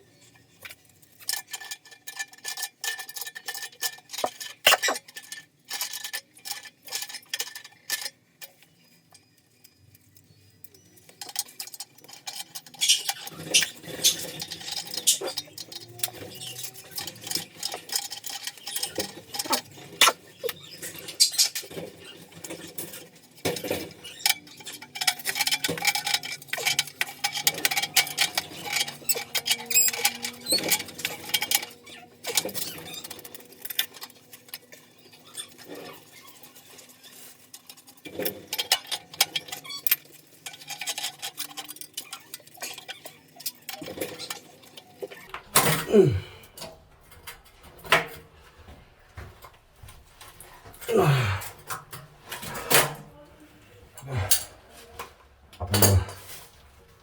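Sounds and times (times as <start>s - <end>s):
clicks and taps on metal pipes: 0.3s - 53.0s
sliding scrape on metal: 3.9s - 5.4s.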